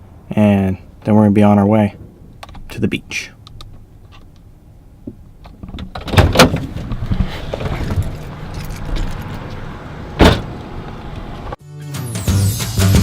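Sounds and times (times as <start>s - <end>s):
low car rumble: 0.0s - 11.6s
loud knocks: 10.2s - 10.6s
heavy thud: 10.2s - 10.7s.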